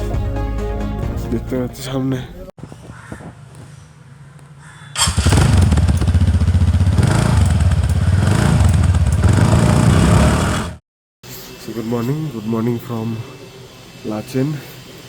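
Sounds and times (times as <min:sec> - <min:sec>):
motorcycle engine running: 0:05.0 - 0:10.8.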